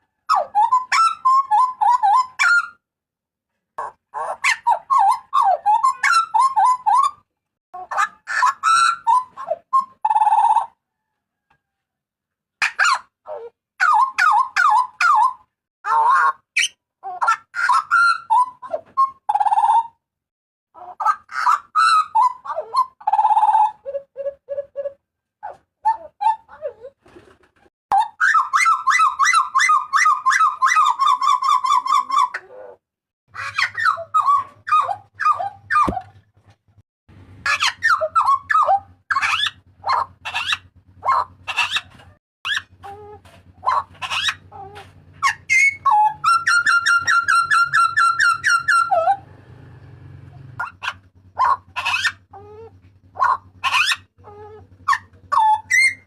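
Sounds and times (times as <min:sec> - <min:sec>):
bird giving loud calls: 0:28.0 - 0:36.0, 0:37.4 - 0:56.0.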